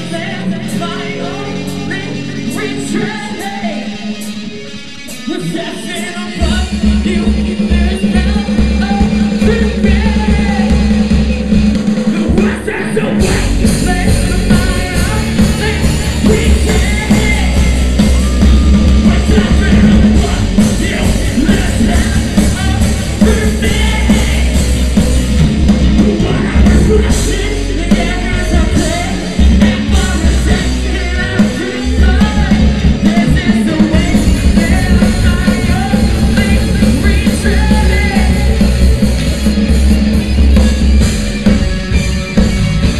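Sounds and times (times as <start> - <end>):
loud rock band playing: 0.0 - 42.9
person singing: 12.0 - 25.0, 25.8 - 39.0.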